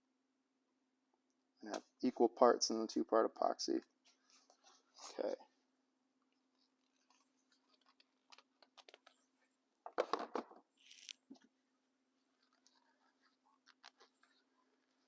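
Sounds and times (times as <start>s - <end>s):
crinkling rustle: 6.5s - 9.4s, 10.8s - 11.5s, 12.2s - 15.0s.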